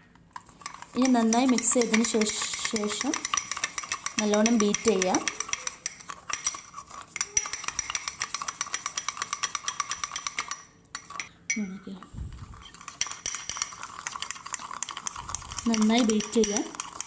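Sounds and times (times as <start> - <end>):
spoon clinking against container: 0.6 - 11.8, 12.5 - 17.0.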